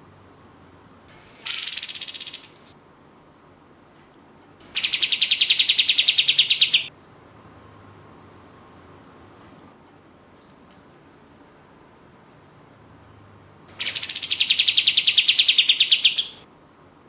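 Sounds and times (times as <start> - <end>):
bulbul singing rattling trills: 1.4 - 2.7, 4.7 - 6.9, 13.8 - 16.4.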